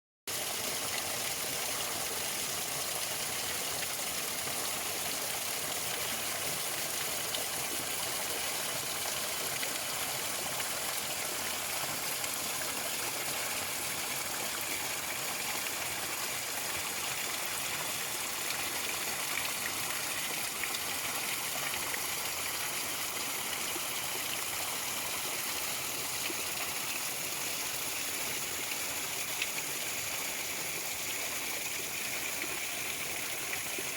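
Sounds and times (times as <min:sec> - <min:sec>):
water running over rocks: 0:00.3 - 0:33.9.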